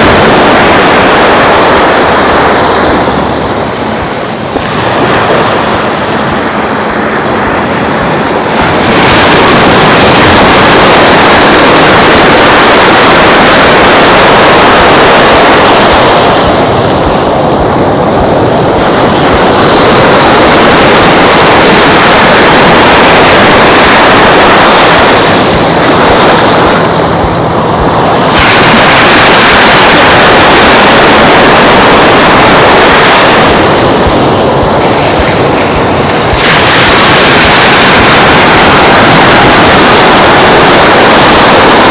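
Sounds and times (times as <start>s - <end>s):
waves washing onto beach: 0.0s - 41.9s.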